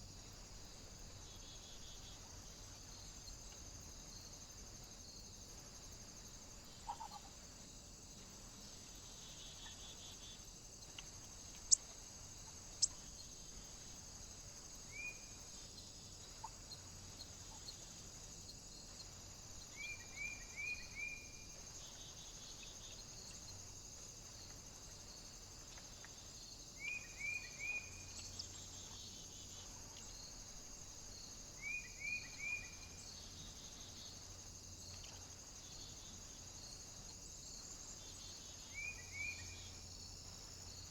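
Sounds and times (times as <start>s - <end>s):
steady high hiss: 0.0s - 40.9s
small bird chirping: 9.1s - 13.3s.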